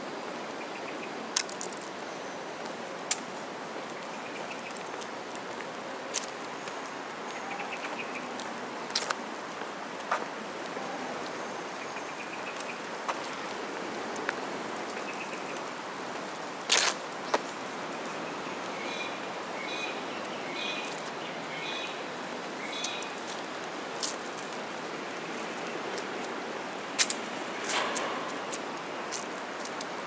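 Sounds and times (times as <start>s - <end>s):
outdoor city hiss: 0.0s - 30.0s
birds chirping: 2.0s - 5.1s, 6.4s - 8.4s, 14.7s - 15.7s, 17.4s - 23.2s.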